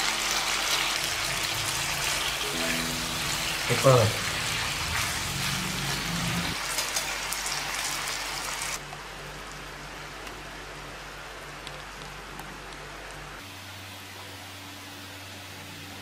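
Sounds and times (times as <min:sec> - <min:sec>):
stir-fry sizzling in a frying pan: 0:00.0 - 0:08.8.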